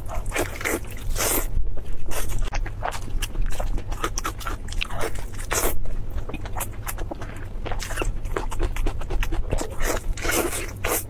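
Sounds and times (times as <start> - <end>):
crunchy biting and chewing: 0.0 - 11.0.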